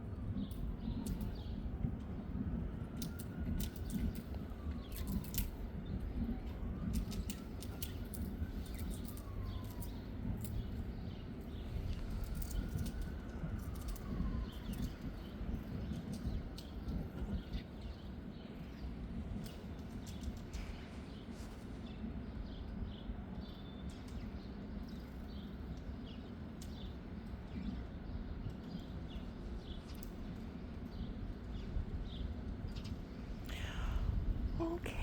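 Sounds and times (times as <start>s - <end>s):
wind rumbling on microphone: 0.0s - 35.0s
faint siren wailing: 0.2s - 19.3s
small birds chirping: 7.0s - 35.0s.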